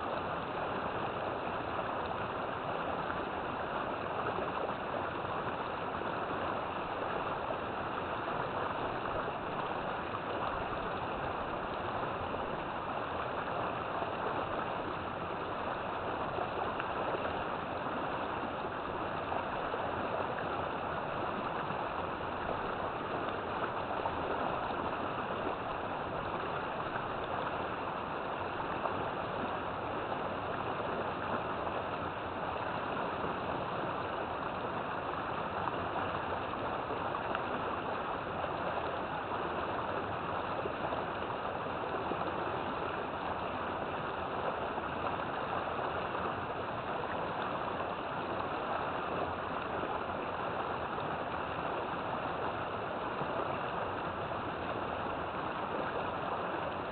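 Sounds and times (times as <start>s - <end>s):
river water flowing: 0.0s - 56.9s.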